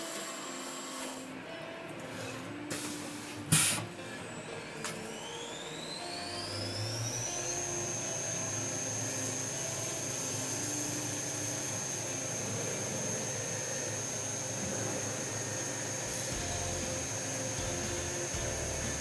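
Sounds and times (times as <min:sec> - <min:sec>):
mill spindle whine: 0:00.0 - 0:19.0
coolant hissing: 0:02.7 - 0:03.9, 0:06.7 - 0:19.0.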